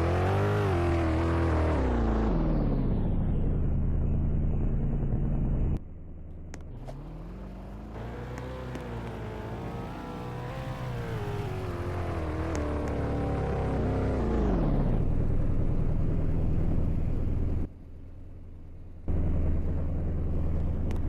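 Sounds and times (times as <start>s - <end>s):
vehicle engine revving: 0.0s - 2.9s, 6.8s - 15.1s.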